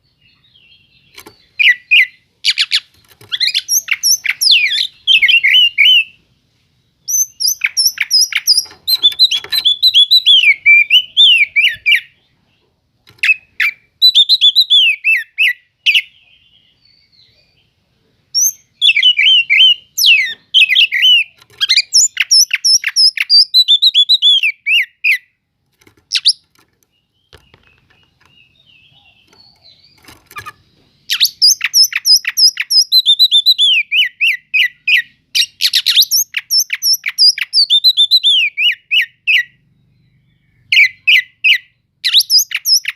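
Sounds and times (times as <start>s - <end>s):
bird singing chirps and whistles: 0.0s - 6.2s, 7.0s - 12.3s, 13.2s - 17.7s, 18.3s - 25.4s, 26.1s - 42.9s.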